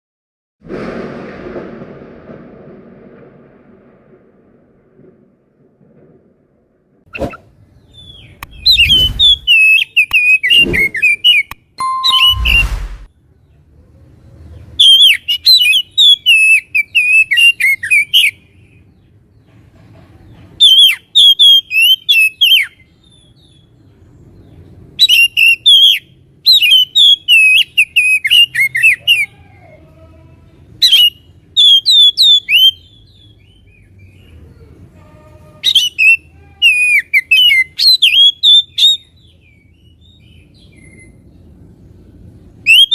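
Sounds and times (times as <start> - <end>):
bird singing whistled notes: 7.9 - 13.0, 42.7 - 42.9
low thumps: 12.2 - 13.1.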